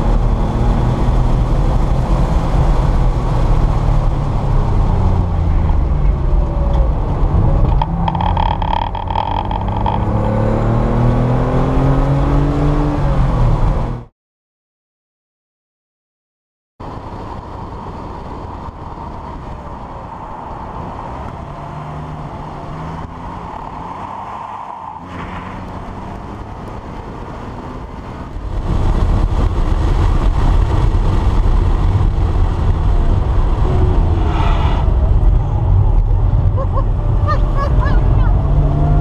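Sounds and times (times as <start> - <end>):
car engine running at speed: 0.0 - 14.1, 25.6 - 34.2, 34.9 - 39.0
wind and road noise: 0.0 - 14.1, 16.8 - 39.0.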